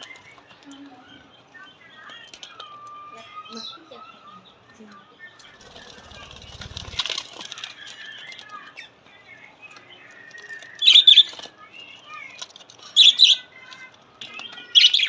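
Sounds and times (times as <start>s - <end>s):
small parrots chattering: 5.5s - 7.4s.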